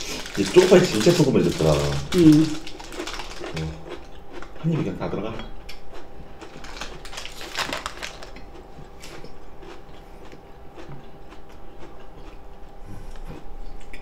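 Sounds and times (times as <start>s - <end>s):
people chewing food: 0.0s - 14.0s.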